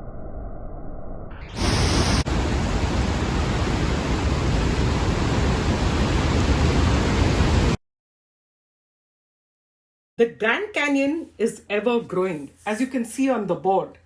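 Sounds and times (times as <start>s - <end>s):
rush of falling water: 1.6s - 7.8s.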